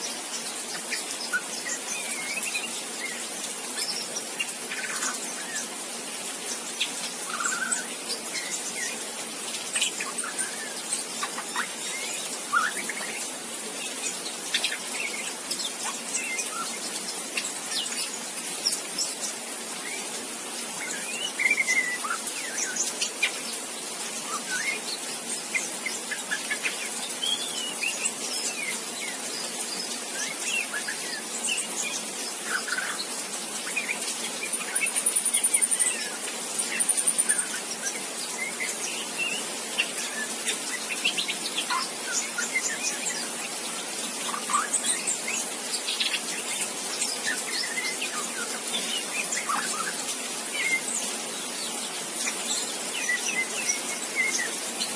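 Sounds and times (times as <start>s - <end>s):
steady hiss: 0.0s - 54.9s
young bird chirping and whistling: 0.7s - 3.3s, 6.8s - 9.0s, 9.8s - 13.3s, 20.8s - 23.4s, 24.2s - 43.4s, 44.2s - 51.0s.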